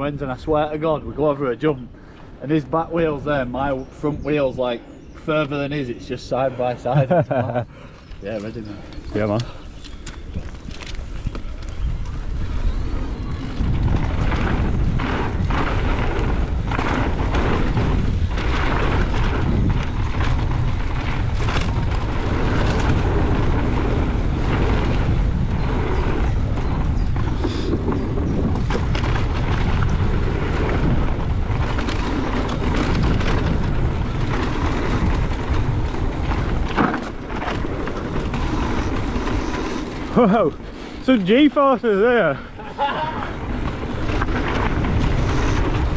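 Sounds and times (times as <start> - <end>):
tyres on dirt trail: 0.0 - 45.9
wind on microphone: 2.8 - 45.9
bike knocks and rattles: 8.4 - 41.0.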